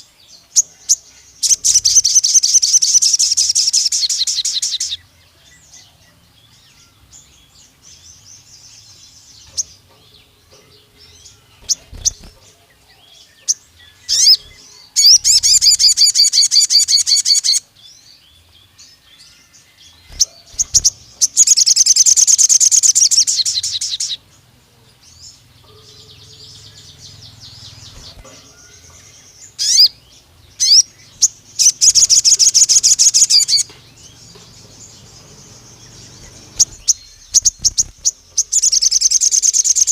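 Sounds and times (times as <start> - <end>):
bird chirps and twittering: 0.0 - 39.9
bird song rapid high notes: 9.4 - 12.6, 13.4 - 17.8, 20.0 - 24.2, 29.2 - 39.9.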